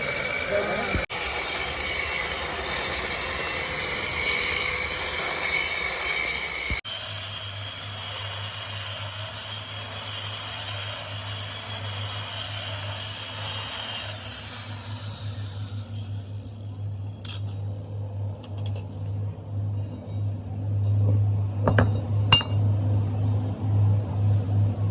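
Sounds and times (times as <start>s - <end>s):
power tool grinding metal: 0.0s - 17.0s.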